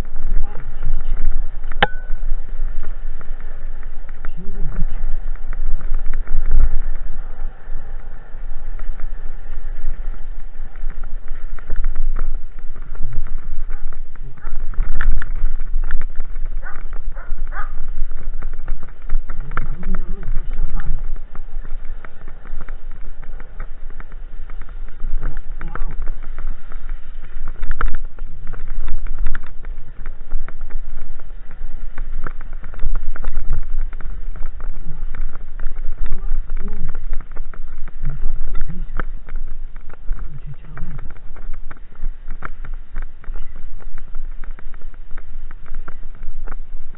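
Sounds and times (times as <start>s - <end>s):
wind buffeting microphone: 0.0s - 46.9s
bicycle knocks and rattles: 1.7s - 2.3s.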